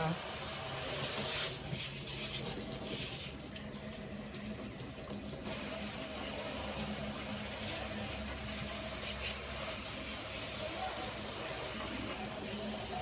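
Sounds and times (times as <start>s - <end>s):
tap water splashing in a sink: 0.3s - 13.0s.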